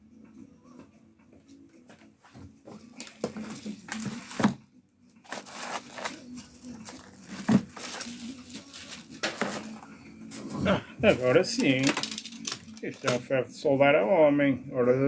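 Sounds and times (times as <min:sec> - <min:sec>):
packaging rustling and tearing: 0:05.2 - 0:09.8, 0:11.6 - 0:13.2.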